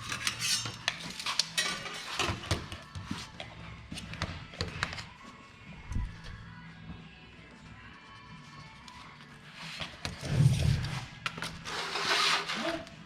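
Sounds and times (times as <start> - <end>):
tools clattering being handled: 0.0 - 2.6.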